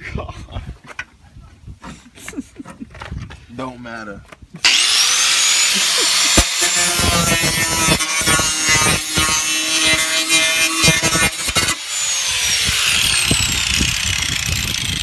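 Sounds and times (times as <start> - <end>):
angle grinder cutting metal: 4.6 - 15.0
grinder winding down: 4.6 - 15.0.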